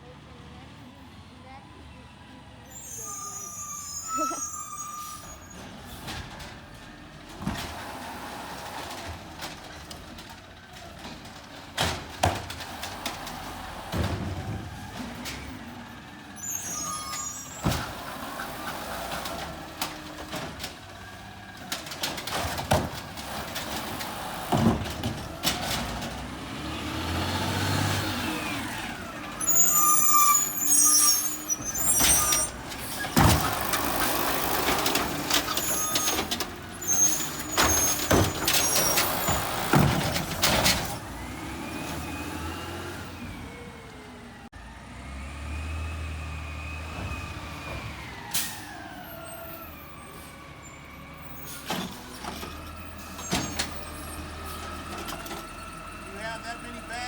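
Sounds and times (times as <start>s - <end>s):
garbage truck diesel engine: 0.0s - 57.0s.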